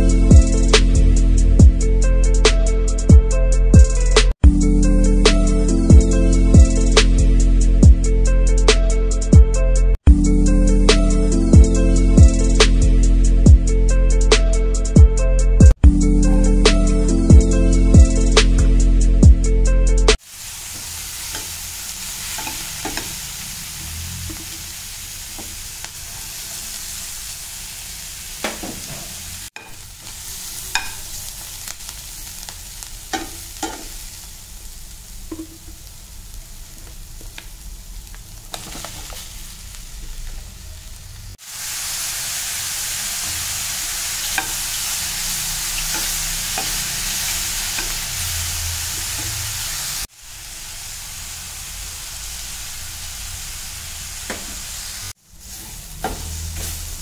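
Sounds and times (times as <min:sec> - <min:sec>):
food sizzling in a pan: 0:20.2 - 0:57.0
steel spatula scraping and tapping: 0:22.3 - 0:23.2, 0:29.6 - 0:29.8, 0:30.7 - 0:31.2, 0:33.1 - 0:34.0, 0:44.3 - 0:44.6, 0:45.8 - 0:46.9.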